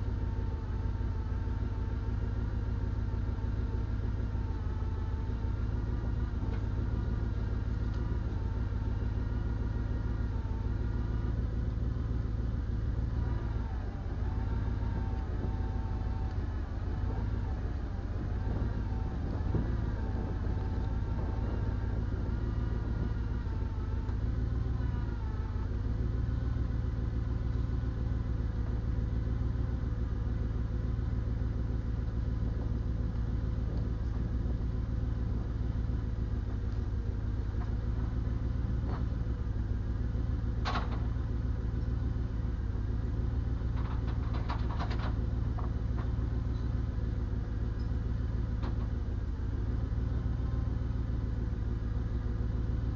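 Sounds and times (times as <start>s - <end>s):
diesel engine running: 0.0s - 52.9s
wavering hydraulic whine: 0.0s - 52.9s.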